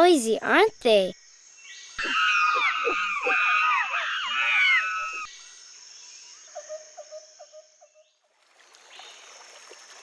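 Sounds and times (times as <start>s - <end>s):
rainforest background: 0.0s - 10.0s
monkeys calling loudly: 2.0s - 5.3s.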